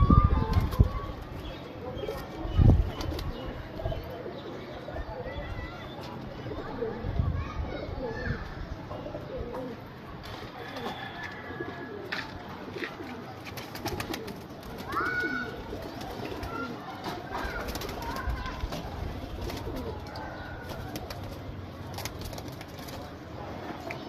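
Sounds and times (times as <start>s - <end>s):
pigeons cooing: 10.6s - 24.0s.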